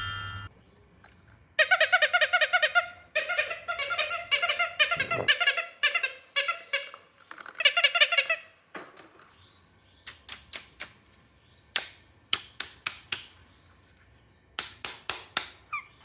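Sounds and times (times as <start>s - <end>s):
rapid squeaky chirping: 1.6s - 8.6s, 15.7s - 16.0s.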